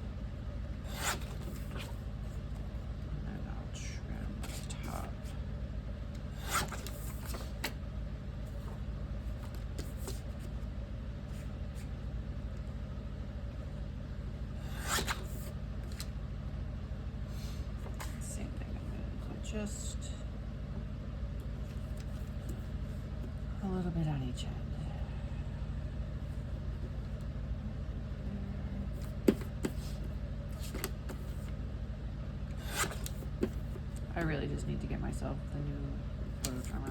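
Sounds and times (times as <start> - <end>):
steady low hum: 0.0 - 36.9
paper cutting stroke: 0.9 - 1.9, 6.4 - 7.6, 14.6 - 16.0, 32.6 - 33.6
paper handling clicks: 14.8 - 16.1, 32.6 - 34.0.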